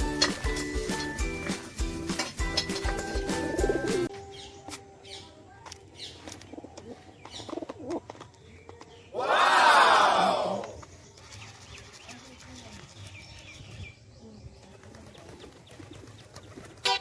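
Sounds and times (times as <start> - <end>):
background music: 0.0 - 5.4
pigeons cooing: 2.7 - 4.1, 6.4 - 8.2.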